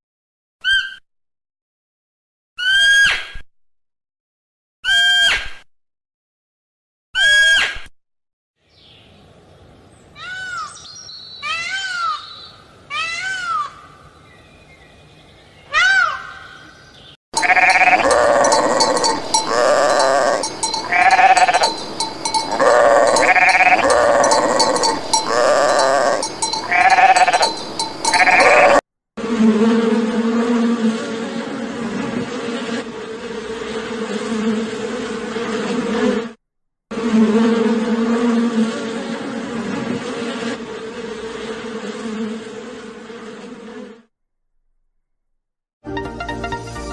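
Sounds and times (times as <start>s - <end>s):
animal bleating: 17.4s - 28.8s
bee buzzing: 17.4s - 31.5s, 37.0s - 44.1s.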